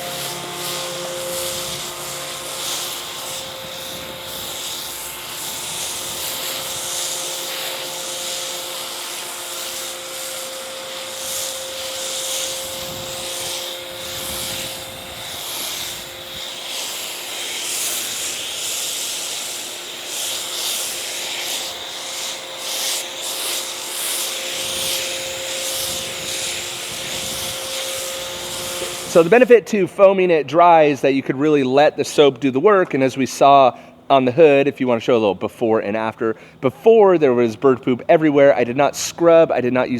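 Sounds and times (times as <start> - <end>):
foam spray hissing: 0.0 - 29.7
pressure washer motor whine: 0.0 - 30.1.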